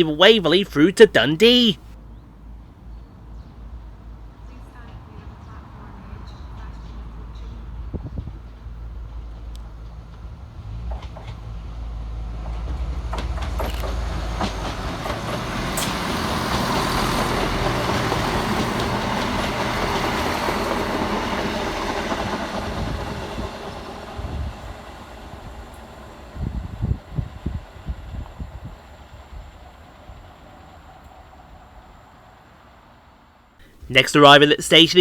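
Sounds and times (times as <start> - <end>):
train rumbling: 8.7 - 31.8.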